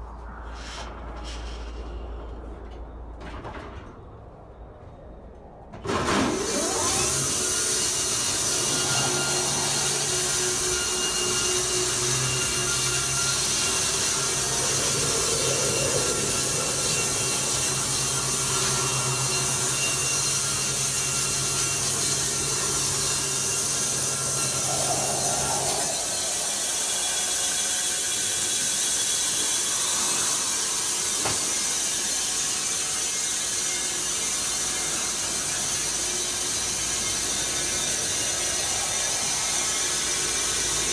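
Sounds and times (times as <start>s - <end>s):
low hum: 0.0s - 20.1s, 21.8s - 28.8s, 36.6s - 40.9s
sawmill machinery sawing: 5.9s - 40.9s.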